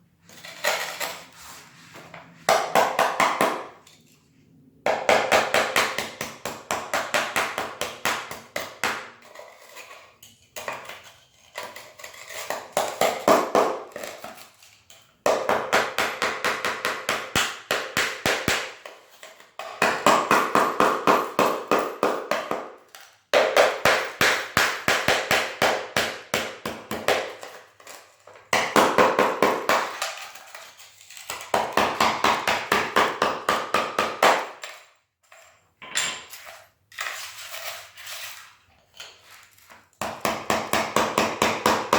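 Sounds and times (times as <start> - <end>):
hammer tapping chisel on tile: 4.9 - 9.1, 15.3 - 19.0, 19.6 - 30.6, 31.2 - 34.9, 40.0 - 41.9.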